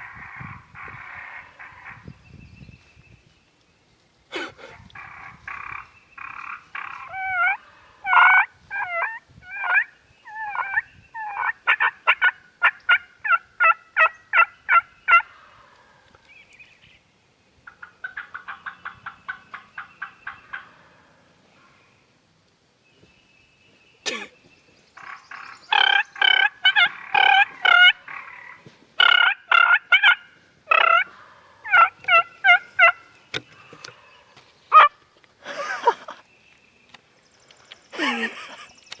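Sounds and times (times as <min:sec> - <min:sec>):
wild turkey yelping: 0:04.6 - 0:15.8, 0:17.6 - 0:21.1, 0:25.0 - 0:35.0.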